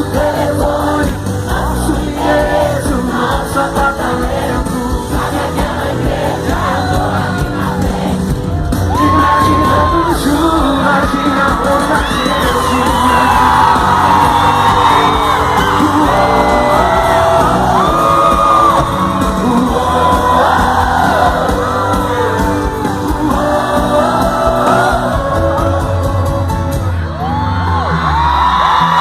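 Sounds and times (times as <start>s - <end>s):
crowd singing along: 0.0s - 27.0s
crowd screaming and whooping: 0.0s - 29.0s
live country concert music: 0.0s - 29.0s.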